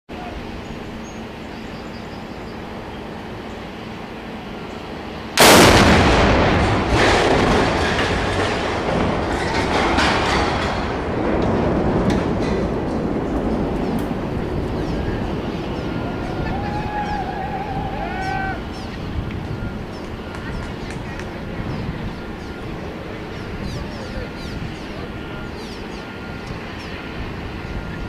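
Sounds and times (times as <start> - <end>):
rumbling and crashing: 5.4 - 18.7
loud demolition blast: 5.4 - 18.9.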